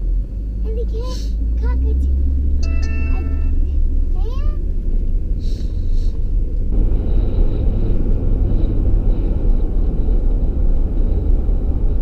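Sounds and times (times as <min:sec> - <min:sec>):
truck driving rumble: 0:00.0 - 0:12.0.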